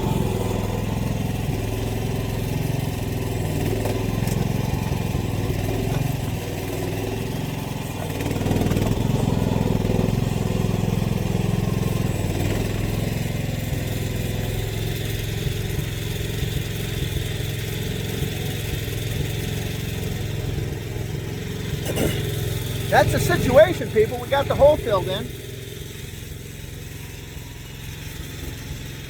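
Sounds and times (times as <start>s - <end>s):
excavator engine running: 21.2s - 25.8s.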